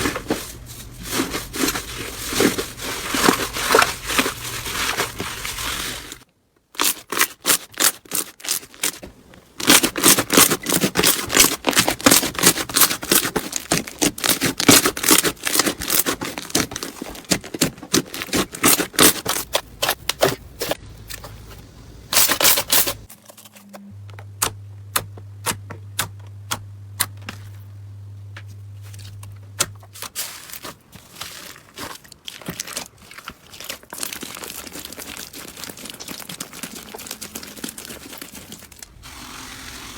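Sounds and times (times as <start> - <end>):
low steady hum: 0.0 - 6.3, 19.2 - 31.4
slime crackling and popping: 30.0 - 38.9.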